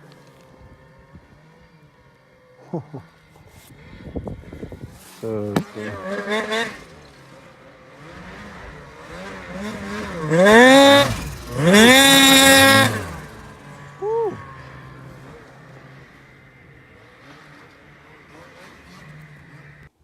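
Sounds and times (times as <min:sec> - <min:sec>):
snowmobile engine revving: 0:00.0 - 0:20.0.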